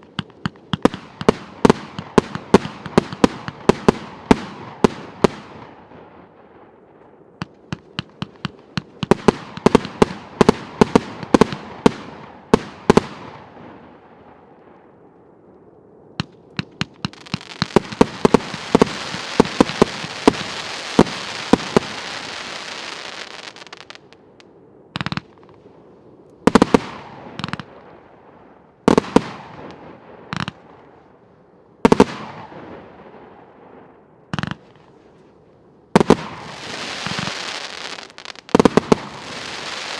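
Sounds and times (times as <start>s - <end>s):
loud firework bangs: 0.0s - 5.9s, 7.4s - 13.8s, 16.2s - 24.1s, 36.0s - 39.9s
firework shots: 0.0s - 6.4s, 7.4s - 14.4s, 16.2s - 24.2s, 25.0s - 25.6s, 26.4s - 31.0s, 31.8s - 33.5s, 34.3s - 35.0s, 36.0s - 39.9s.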